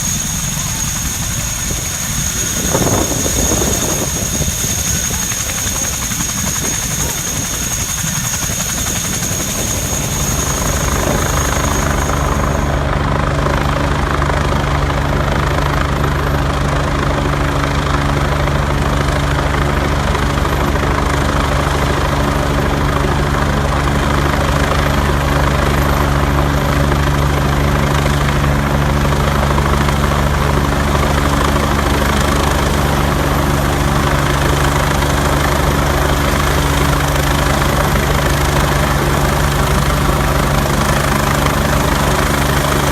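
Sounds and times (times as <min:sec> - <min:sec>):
thin high whine: 0:00.0 - 0:13.0
helicopter rotor and engine: 0:00.0 - 0:42.9.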